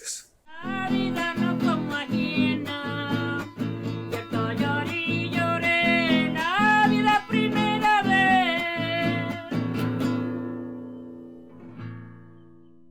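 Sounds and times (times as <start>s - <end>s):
person singing: 0.0s - 10.0s
acoustic guitar strumming: 0.5s - 12.9s.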